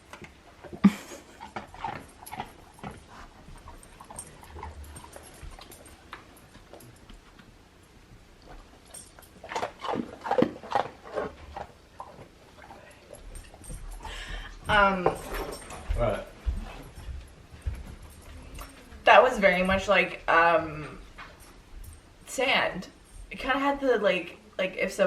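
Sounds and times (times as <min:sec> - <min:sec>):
dog whining and whimpering: 0:18.2 - 0:19.1.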